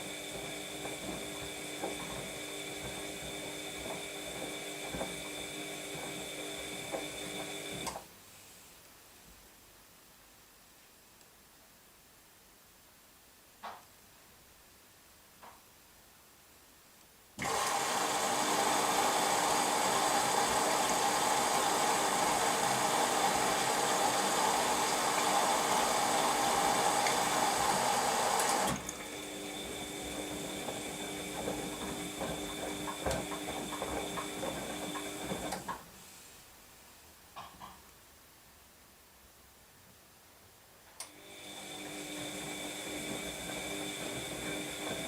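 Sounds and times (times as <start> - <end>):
washing machine whine: 0.0 - 8.0, 17.4 - 35.8, 41.1 - 45.0.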